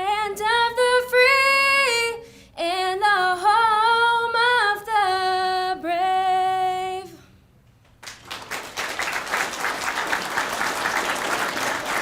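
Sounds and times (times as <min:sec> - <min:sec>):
crowd applauding and cheering: 0:08.0 - 0:12.0.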